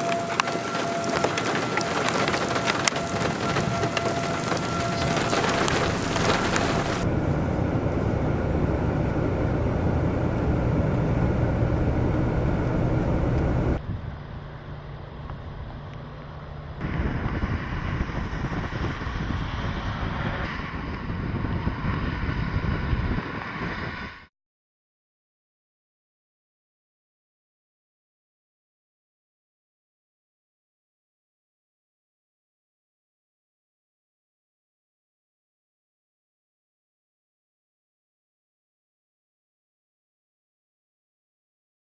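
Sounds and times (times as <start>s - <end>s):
rain hissing: 0.0s - 13.8s
wind buffeting microphone: 0.0s - 15.9s, 16.8s - 24.3s
low steady rumble: 0.1s - 24.1s.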